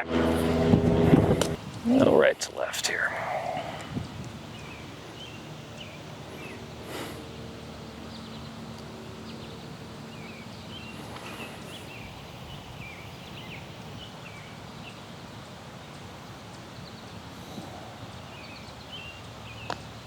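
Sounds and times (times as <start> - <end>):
wind noise: 0.0 - 6.9
small birds chirping: 1.5 - 20.0.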